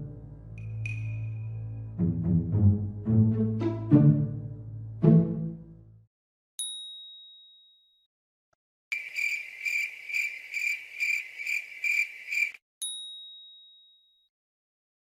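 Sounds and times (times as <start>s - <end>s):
bright ding: 0.6s - 1.5s
cricket chirping: 8.9s - 12.6s.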